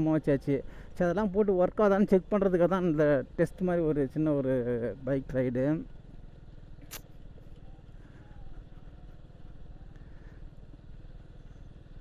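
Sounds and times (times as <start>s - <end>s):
motorcycle engine running: 0.0s - 12.0s
sharp click: 6.8s - 7.1s.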